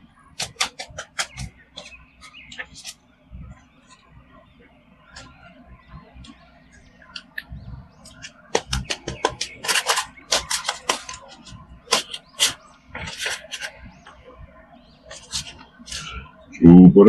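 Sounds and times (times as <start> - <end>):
packaging rustling: 8.0 - 13.8, 15.1 - 16.1.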